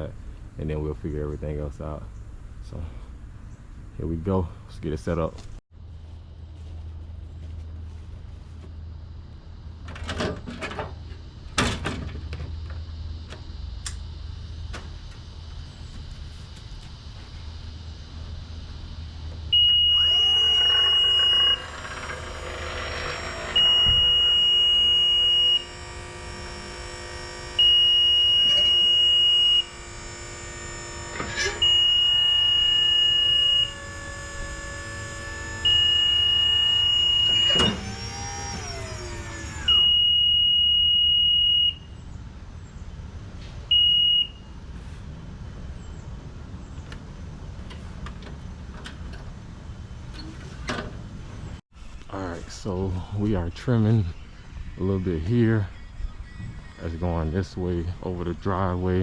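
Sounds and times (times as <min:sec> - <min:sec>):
power unit whining: 0:08.7 - 0:44.6, 0:45.8 - 0:59.0
high warning beeps: 0:19.5 - 0:21.8, 0:23.1 - 0:27.0, 0:35.6 - 0:37.8.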